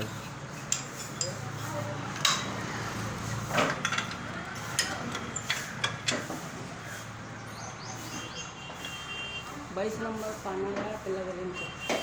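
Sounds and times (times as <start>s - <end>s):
metal tools clinking on metal: 0.6s - 2.6s, 3.5s - 6.2s.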